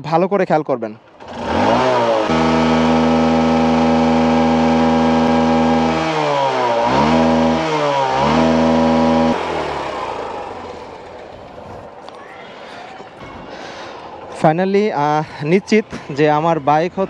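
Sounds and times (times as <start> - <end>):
motorcycle engine revving hard: 1.1 - 11.3.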